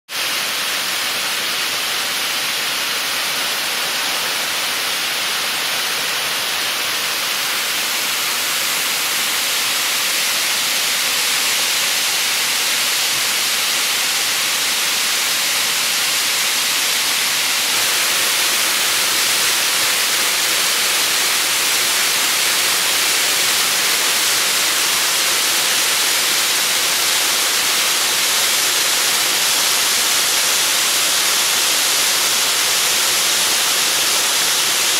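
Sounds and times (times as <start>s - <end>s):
waterfall pouring: 0.2s - 34.9s.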